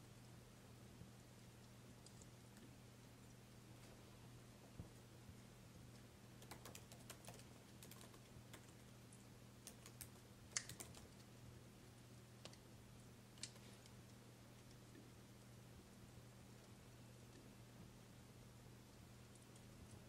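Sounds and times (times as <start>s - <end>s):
low steady hum: 0.0s - 20.0s
faint sharp clicks: 1.6s - 3.4s, 13.4s - 15.0s.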